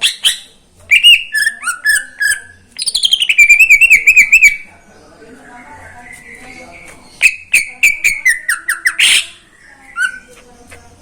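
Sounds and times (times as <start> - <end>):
bird whistling and trilling: 0.0 - 4.6, 7.0 - 10.4.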